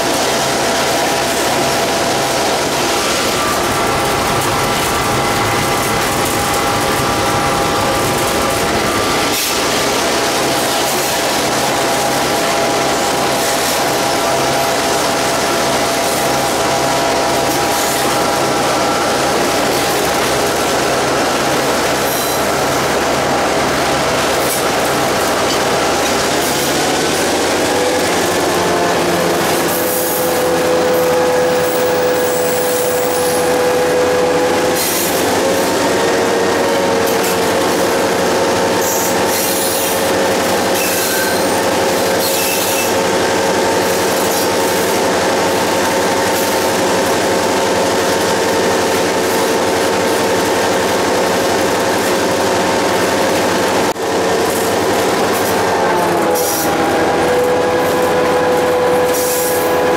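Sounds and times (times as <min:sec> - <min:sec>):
train running drone: 0:00.0 - 0:59.9
high-pitched wheel squeal: 0:40.7 - 0:41.6, 0:42.2 - 0:43.0.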